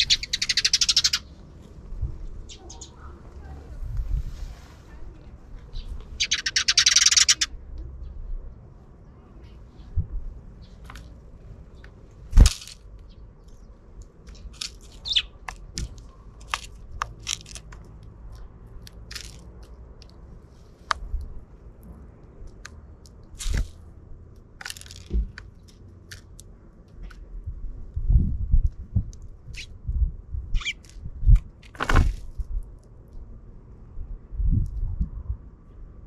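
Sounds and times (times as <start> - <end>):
sparrows tapping and cracking: 0.0 - 1.4, 5.7 - 7.9, 10.6 - 23.6, 24.3 - 27.3
sparrows chirping: 0.0 - 3.8, 5.6 - 8.4, 9.1 - 12.1, 13.0 - 15.5, 29.5 - 29.8, 30.5 - 30.9.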